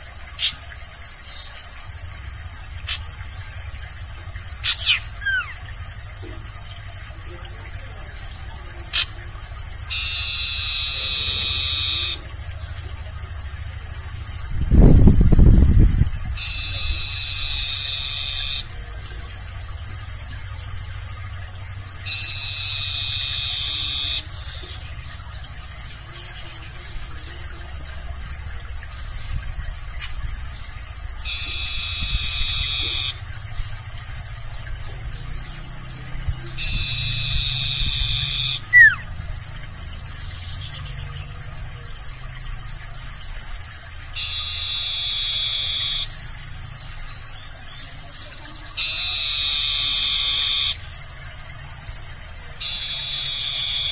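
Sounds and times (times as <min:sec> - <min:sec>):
barn owl screeching: 0:04.6 - 0:05.6, 0:09.9 - 0:12.3, 0:16.4 - 0:18.6, 0:22.1 - 0:24.3, 0:31.3 - 0:33.2, 0:36.6 - 0:39.1, 0:44.2 - 0:46.1, 0:48.8 - 0:50.8, 0:52.6 - 0:53.9
steady low rumble: 0:12.4 - 0:17.7.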